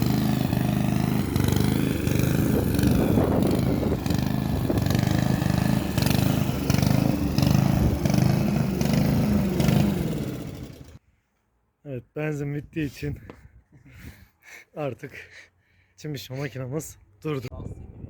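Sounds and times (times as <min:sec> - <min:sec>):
lawn mower engine pulsing: 0:00.0 - 0:11.0.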